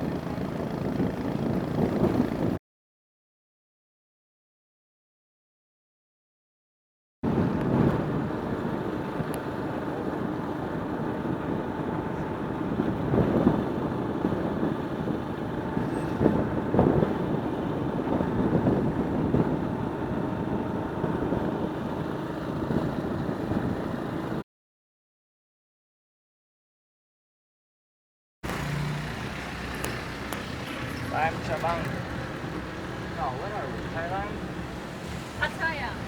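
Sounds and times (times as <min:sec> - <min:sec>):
motor vehicle rumbling: 0:00.0 - 0:02.6, 0:07.3 - 0:24.4, 0:28.4 - 0:36.0.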